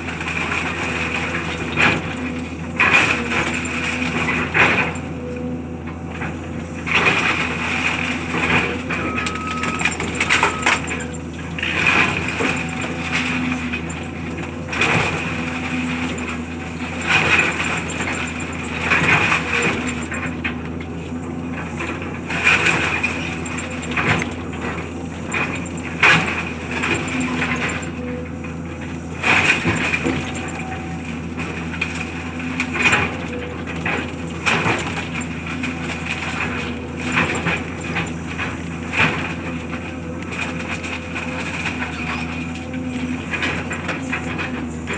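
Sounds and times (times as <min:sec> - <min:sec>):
heavy machinery engine running: 0:00.0 - 0:44.9
debris scraping and crashing: 0:06.9 - 0:20.3.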